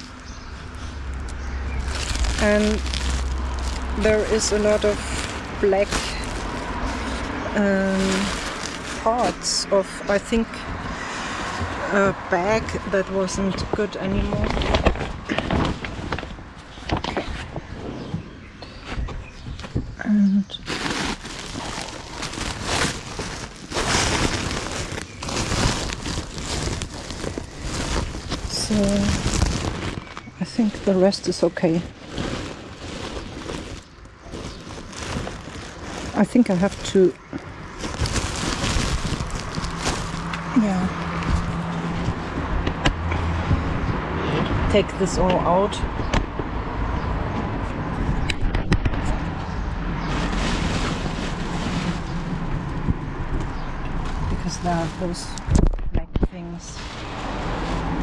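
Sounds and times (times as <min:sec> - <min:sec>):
low rumble: 0:00.0 - 0:16.6
clothes and bags rustling: 0:00.0 - 0:42.8, 0:50.0 - 0:55.7, 0:56.5 - 0:58.0
belongings being handled: 0:01.2 - 0:10.3.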